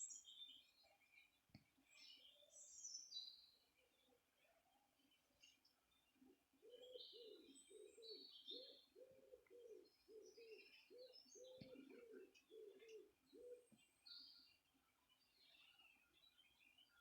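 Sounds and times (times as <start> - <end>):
low bird cooing: 6.2 - 14.6.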